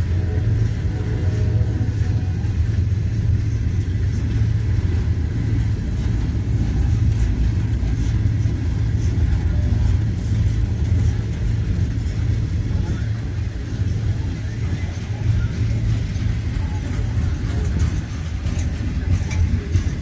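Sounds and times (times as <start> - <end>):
steel wheels rumbling on rails: 0.0 - 20.0.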